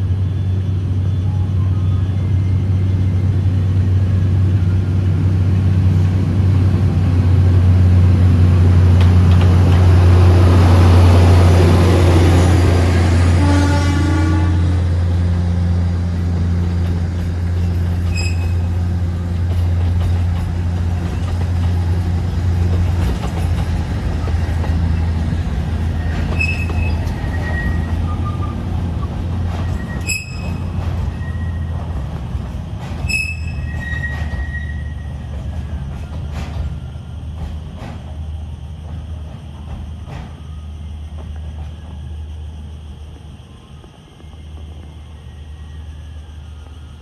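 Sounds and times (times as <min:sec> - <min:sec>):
diesel train engine drone: 0:00.0 - 0:47.0
high-pitched wheel squeals: 0:17.6 - 0:20.2, 0:23.0 - 0:35.9.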